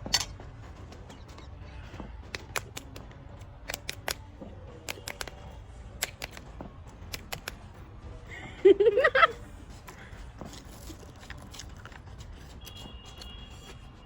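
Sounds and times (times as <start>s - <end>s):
sharp clicks and taps: 2.2s - 5.4s, 6.0s - 7.6s.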